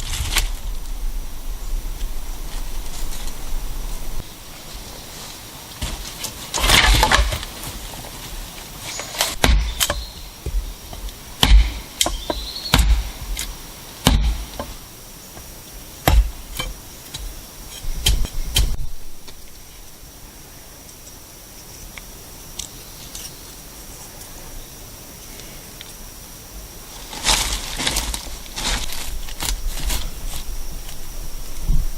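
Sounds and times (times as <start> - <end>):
sharp knocking blows: 9.4 - 14.8, 16.0 - 17.3.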